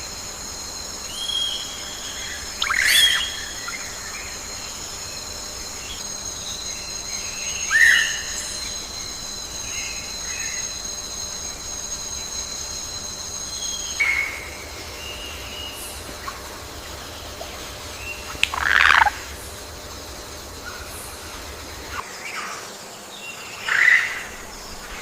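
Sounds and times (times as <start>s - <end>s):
insects trilling drone: 0.0s - 25.0s.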